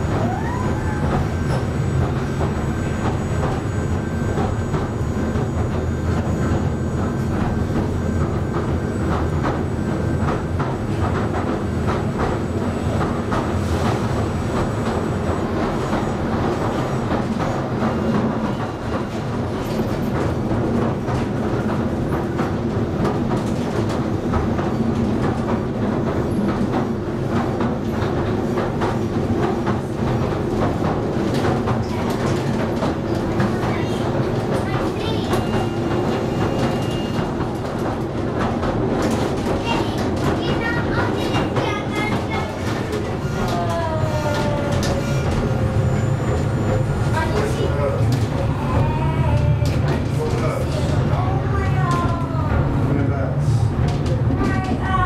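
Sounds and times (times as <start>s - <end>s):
train rolling rumble: 0.0s - 55.0s
wheels clicking on rails: 0.0s - 55.0s.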